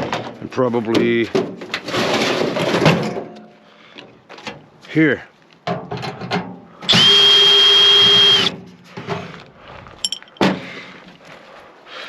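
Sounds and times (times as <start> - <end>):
cordless drill whining: 6.9 - 8.6.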